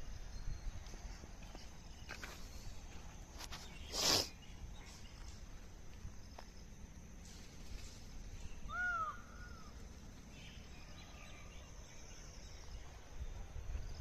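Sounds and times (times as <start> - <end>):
steady high hiss: 2.2 - 14.0
bird arching call: 8.7 - 9.8.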